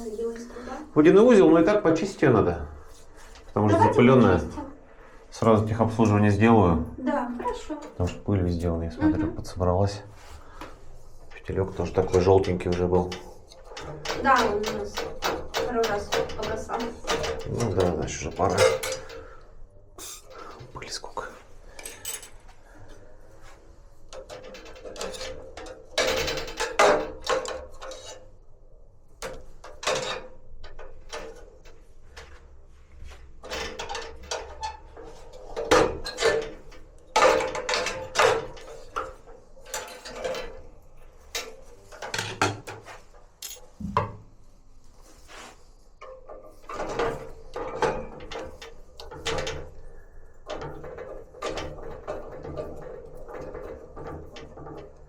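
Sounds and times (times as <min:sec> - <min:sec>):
metal parts clattering: 0:11.4 - 0:19.3, 0:21.7 - 0:22.5, 0:33.4 - 0:43.8.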